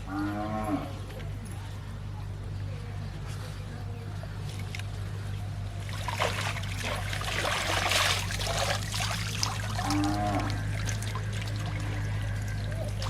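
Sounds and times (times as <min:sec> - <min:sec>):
steady low hum: 0:00.0 - 0:13.0
shallow water splashing: 0:05.7 - 0:13.0.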